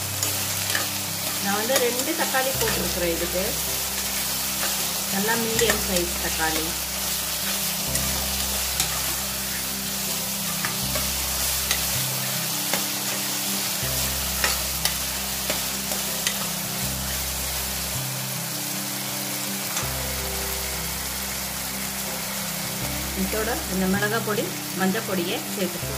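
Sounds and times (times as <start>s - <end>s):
vegetables sizzling in hot oil: 0.0s - 25.9s
metal ladle scraping pan: 0.2s - 13.3s.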